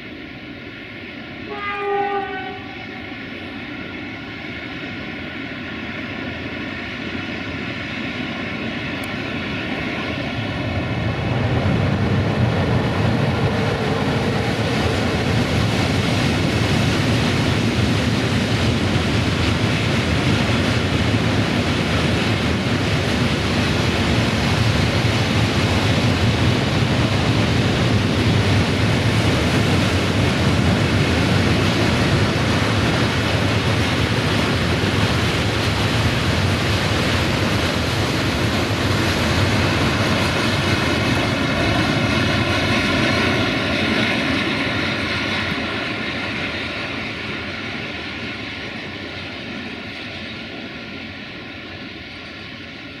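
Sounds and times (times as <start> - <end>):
electric locomotive humming: 0.0 - 53.0
locomotive horn blast: 1.5 - 2.9
train wagons rolling on rails: 4.7 - 53.0.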